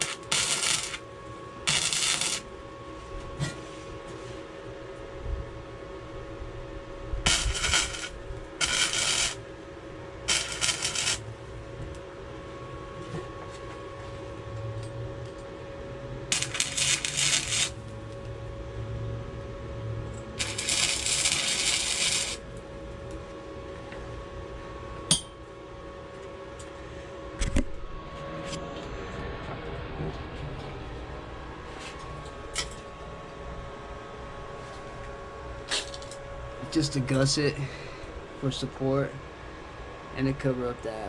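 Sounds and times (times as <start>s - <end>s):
welding crackle: 0.0s - 1.0s, 1.7s - 2.5s, 7.3s - 9.4s, 10.3s - 11.3s, 16.3s - 17.9s, 20.4s - 22.4s
steady hum: 0.0s - 41.0s.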